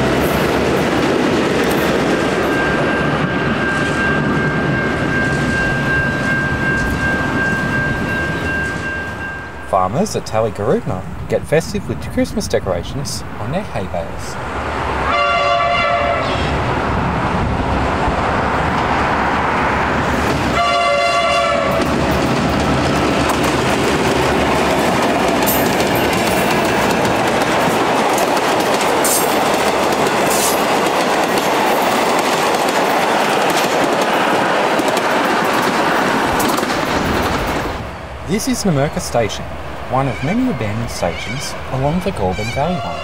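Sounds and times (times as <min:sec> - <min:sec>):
train horn: 0:15.0 - 0:16.6, 0:20.5 - 0:21.9, 0:42.4 - 0:43.0
train wheels clacking over rails: 0:21.6 - 0:37.8.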